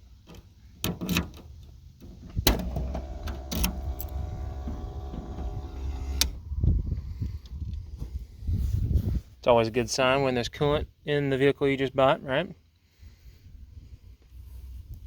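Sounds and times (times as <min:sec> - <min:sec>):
low mechanical hum: 0:00.1 - 0:08.3
trunk latch clicks: 0:00.2 - 0:06.4
trunk lid clunk: 0:00.2 - 0:06.5.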